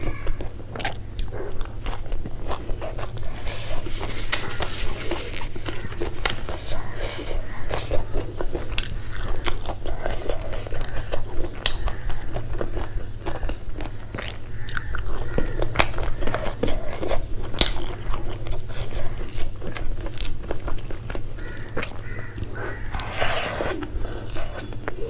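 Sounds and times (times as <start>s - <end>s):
chewing crunchy food: 0.0s - 25.0s.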